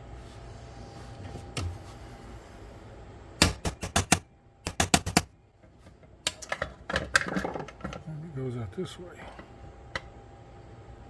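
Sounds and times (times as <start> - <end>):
hammer tapping metal punch: 3.4 - 5.3.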